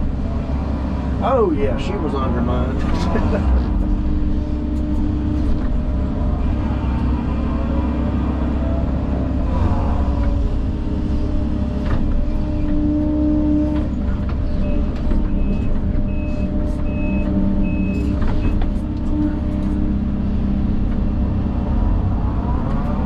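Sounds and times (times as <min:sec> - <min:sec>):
heavy machine engine running: 0:00.0 - 0:23.0
engine knocks: 0:08.4 - 0:20.0.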